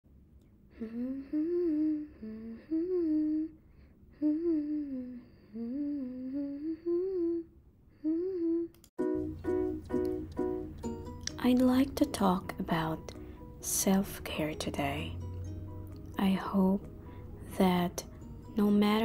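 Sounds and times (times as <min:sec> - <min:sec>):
woman humming a slow melody: 0:00.7 - 0:08.9.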